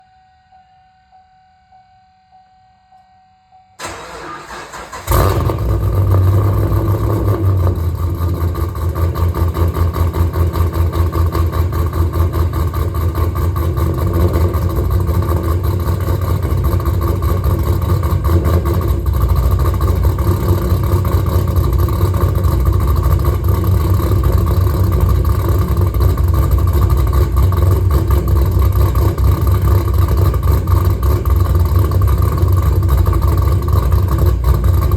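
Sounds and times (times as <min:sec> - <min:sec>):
starter motor cranking: 0:03.8 - 0:05.8
car engine idling: 0:03.8 - 0:34.9.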